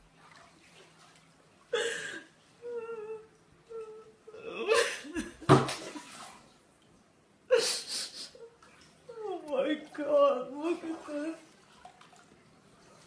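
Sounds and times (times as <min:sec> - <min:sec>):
woman sobbing: 0:01.7 - 0:05.5, 0:07.5 - 0:11.4.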